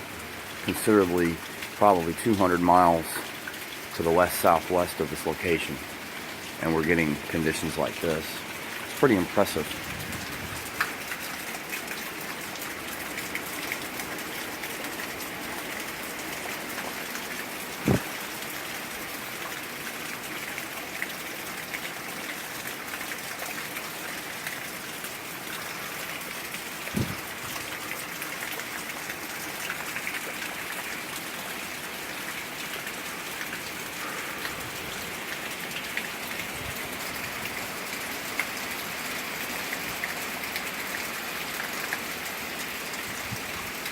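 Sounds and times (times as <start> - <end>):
heavy wind-blown rain hissing: 4.0 - 11.1, 12.8 - 19.2, 25.3 - 28.2, 31.8 - 39.6, 42.9 - 43.9
sharp knocks: 27.0 - 27.2.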